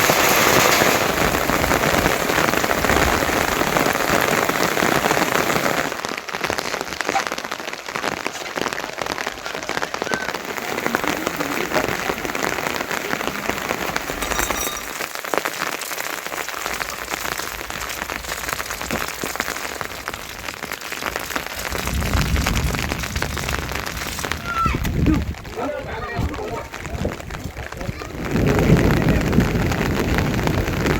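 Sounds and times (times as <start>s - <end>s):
heavy rain falling: 0.0s - 30.9s.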